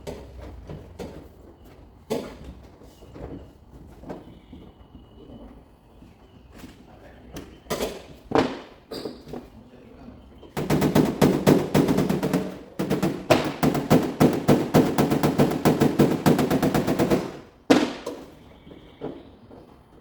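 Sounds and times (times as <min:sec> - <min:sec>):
hard knock on metal: 0:10.6 - 0:18.2
rapid tapping on sheet metal: 0:10.6 - 0:18.2.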